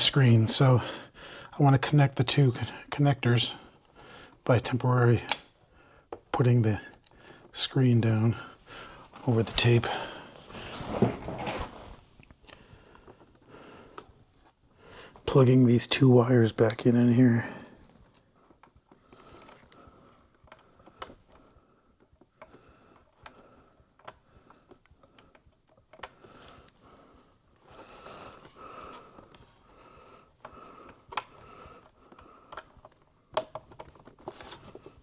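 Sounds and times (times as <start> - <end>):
cable connectors clicking in: 5.2 - 5.6, 22.0 - 26.8, 30.3 - 35.0.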